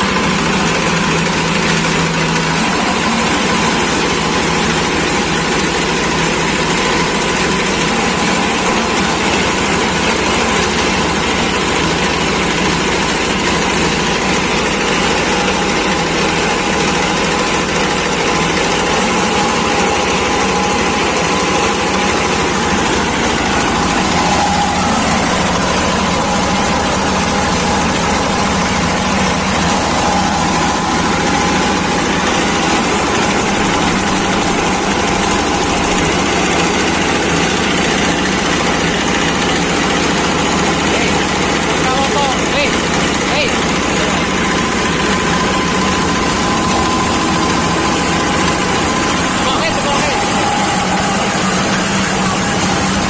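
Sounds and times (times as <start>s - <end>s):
garden shredder running: 0.0s - 53.0s.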